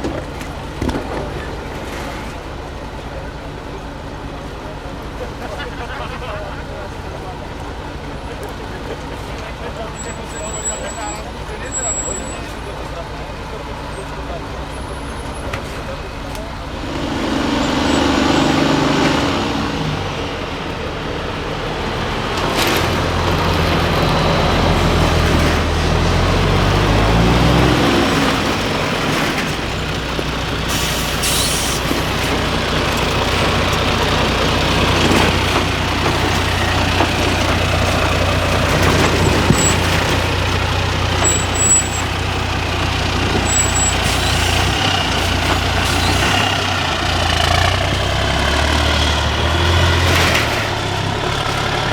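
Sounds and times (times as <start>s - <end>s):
diesel truck engine: 0.0s - 51.9s.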